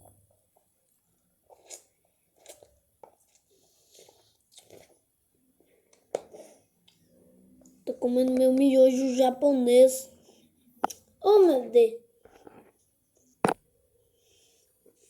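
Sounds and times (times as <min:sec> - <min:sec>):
person chewing noodles: 0:01.4 - 0:07.1.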